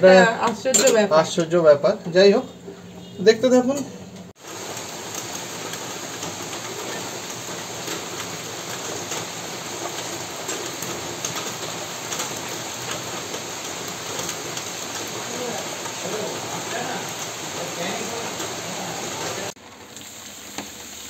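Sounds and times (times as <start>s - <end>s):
steady rain: 4.4s - 21.0s.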